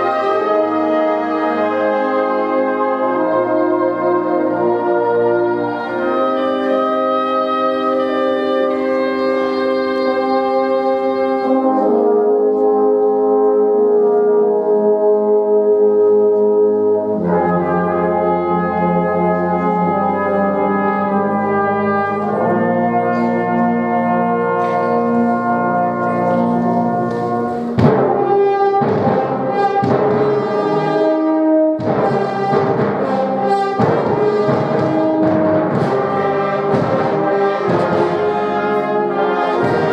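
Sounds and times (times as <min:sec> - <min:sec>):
brass band chords: 0:00.0 - 0:39.9
percussive hits: 0:27.0 - 0:30.5.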